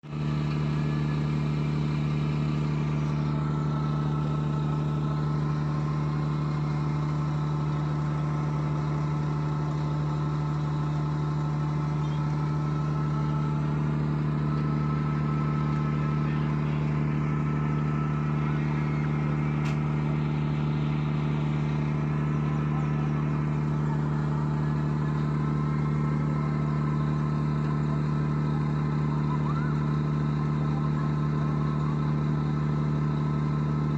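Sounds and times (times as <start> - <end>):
motor humming steadily: 0.0 - 33.9.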